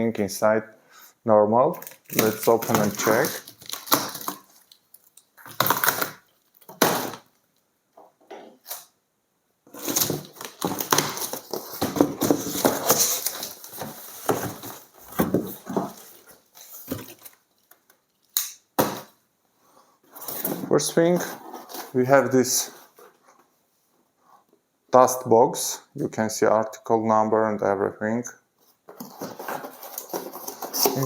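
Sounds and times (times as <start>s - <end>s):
packaging rustling: 1.8s - 7.3s, 9.7s - 19.1s, 28.9s - 31.0s
cardboard box scraping: 9.7s - 17.2s.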